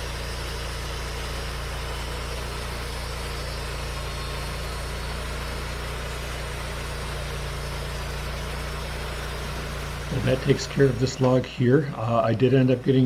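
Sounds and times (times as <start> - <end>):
sawmill engine running steadily: 0.0 - 13.0.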